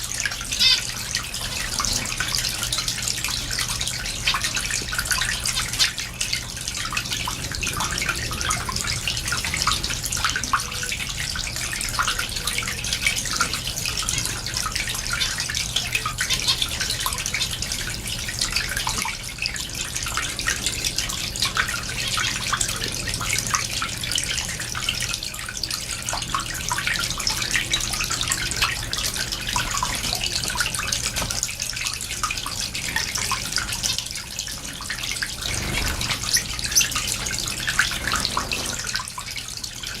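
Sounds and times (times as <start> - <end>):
finches chirping: 0.5 - 0.9.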